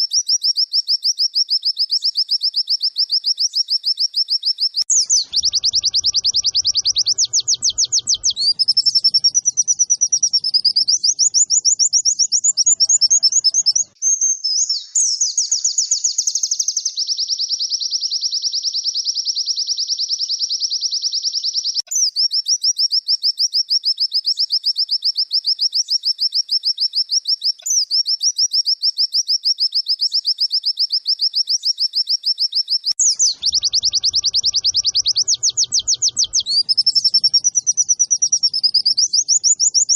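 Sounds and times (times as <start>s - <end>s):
bird fast high trills: 4.9s - 14.0s, 33.0s - 39.9s.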